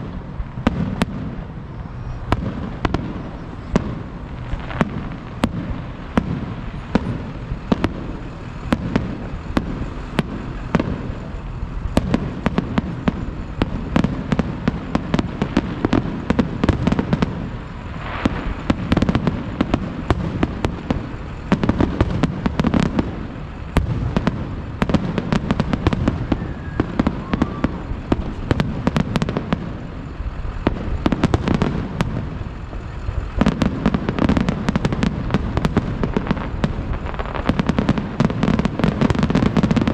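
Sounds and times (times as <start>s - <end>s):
fireworks sharp bangs: 0.0s - 39.9s
low rumble of booms: 0.0s - 39.9s.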